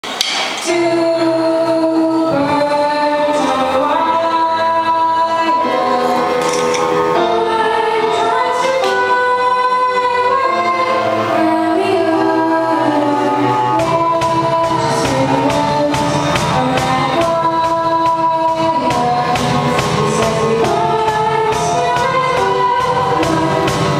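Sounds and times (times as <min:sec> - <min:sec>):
backing music chords: 0:00.0 - 0:23.9
girl singing: 0:00.6 - 0:23.9.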